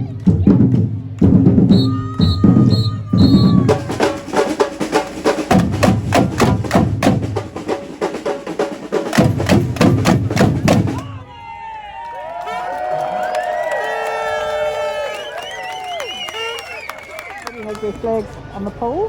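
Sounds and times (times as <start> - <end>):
drum band playing fast rhythm: 0.3 - 11.2.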